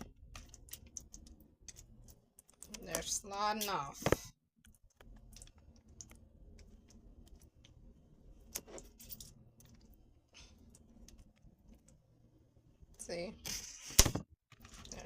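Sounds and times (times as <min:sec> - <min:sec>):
hands working wet pulp clicks: 0:00.0 - 0:03.8, 0:04.6 - 0:12.1.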